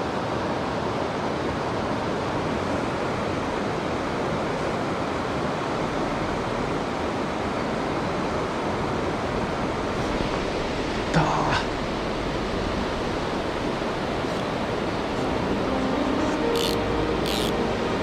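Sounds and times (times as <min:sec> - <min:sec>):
stream water rushing: 0:13.0 - 0:18.0.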